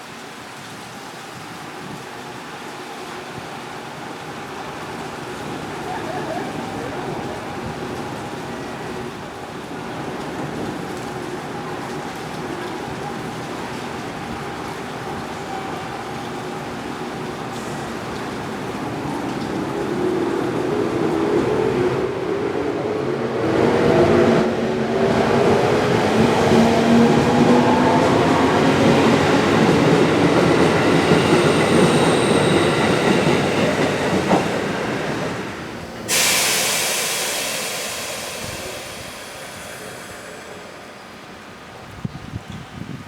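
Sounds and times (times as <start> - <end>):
loud hissing rush: 25.4 - 42.4.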